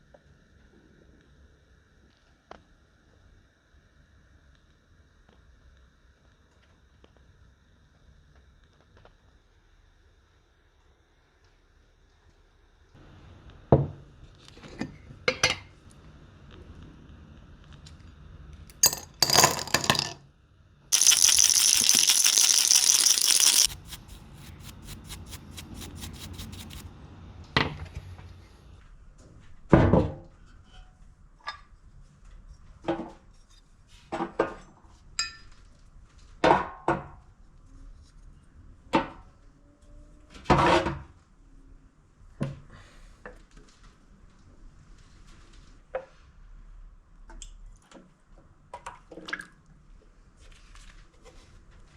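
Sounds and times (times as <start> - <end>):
small metal parts clinking: 18.7 - 20.2, 20.9 - 26.8
quick even ticks: 21.0 - 26.8.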